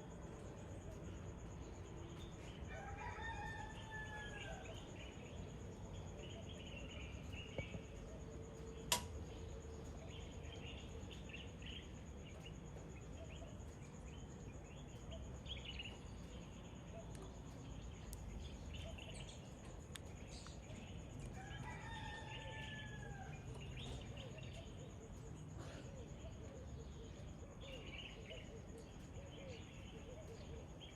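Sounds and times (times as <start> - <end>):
wild birds chirping: 0.0 - 30.9.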